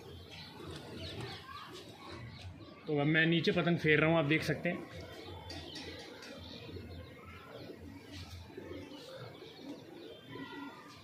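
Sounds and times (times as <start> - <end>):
faint bird calls: 4.9 - 11.0.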